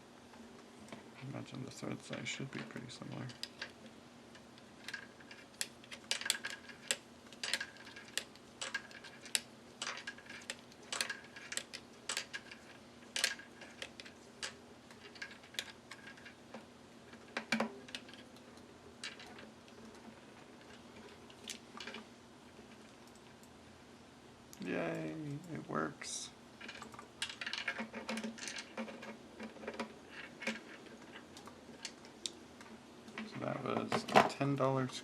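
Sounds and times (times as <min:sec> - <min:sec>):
small parts handled: 0:02.1 - 0:18.4, 0:26.6 - 0:34.4.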